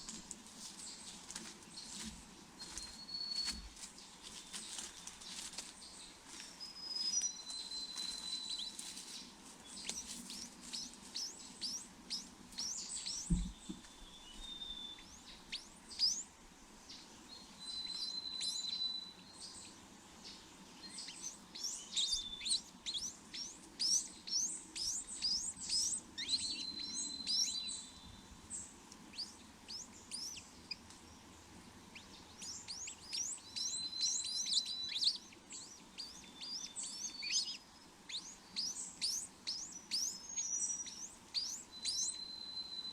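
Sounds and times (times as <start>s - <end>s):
small birds chirping: 0.0s - 42.9s
low thump: 13.2s - 13.8s.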